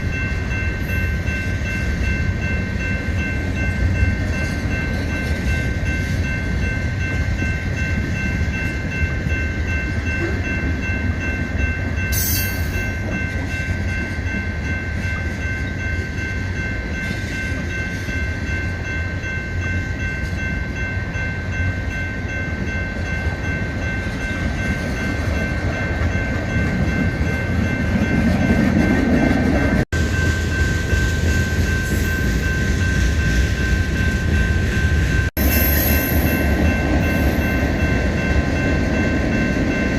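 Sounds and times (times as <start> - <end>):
high-pitched ring: 0.0 - 28.6, 29.6 - 39.9
freight train rumbling on rails: 0.0 - 39.9.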